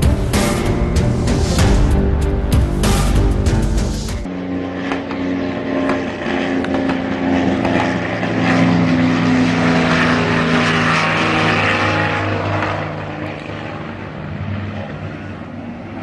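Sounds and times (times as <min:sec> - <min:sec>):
rushing noise: 0:00.0 - 0:04.3
propeller aircraft engine drone: 0:00.0 - 0:16.0.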